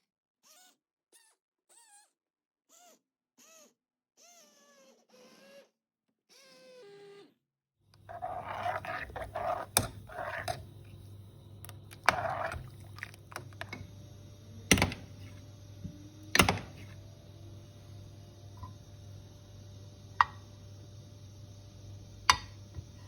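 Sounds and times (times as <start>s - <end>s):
steady low hum: 8.0s - 23.0s
scraping or rustling: 8.1s - 11.0s.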